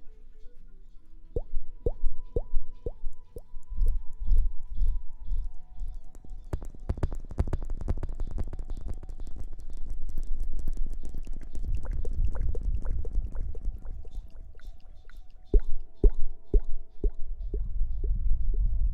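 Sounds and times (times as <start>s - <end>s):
low rumble: 11.5s - 14.8s.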